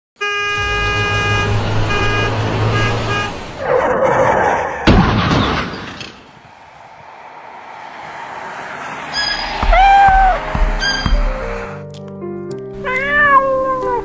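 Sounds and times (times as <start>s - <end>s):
truck horn honking: 0.2s - 3.6s, 9.1s - 11.8s
rushing noise: 0.5s - 4.9s, 6.0s - 11.8s
loud crash: 4.8s - 6.5s.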